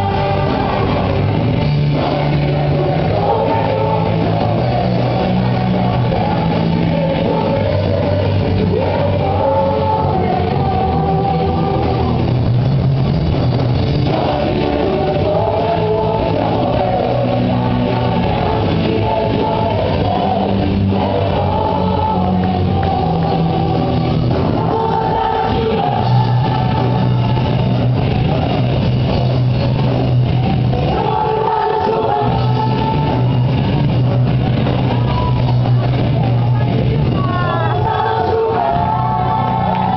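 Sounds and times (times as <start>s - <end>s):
voices singing: 0.0s - 12.4s, 13.8s - 39.9s
rock-style praise music: 0.0s - 39.9s.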